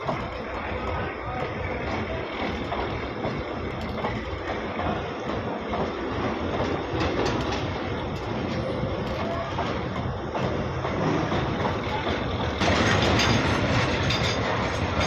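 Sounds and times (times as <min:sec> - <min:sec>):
wheels clacking over rail joints: 0:00.0 - 0:15.0
freight wagons rumbling past: 0:10.5 - 0:15.0.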